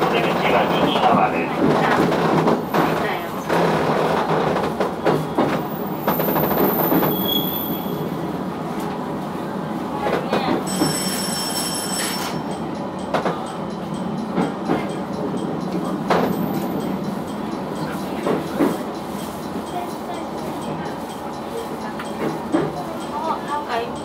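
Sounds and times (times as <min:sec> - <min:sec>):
high wheel squeal: 0:05.8 - 0:08.1, 0:10.7 - 0:12.4.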